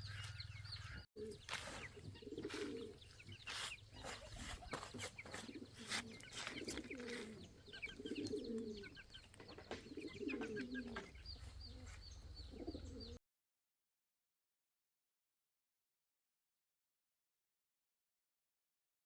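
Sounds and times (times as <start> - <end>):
high bird chirps: 0.0 - 13.2
pigeons cooing: 0.0 - 13.2.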